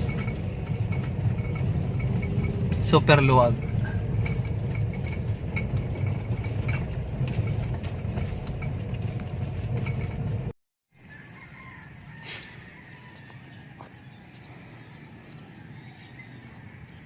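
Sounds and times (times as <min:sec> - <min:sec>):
low outdoor rumble: 0:00.0 - 0:10.6.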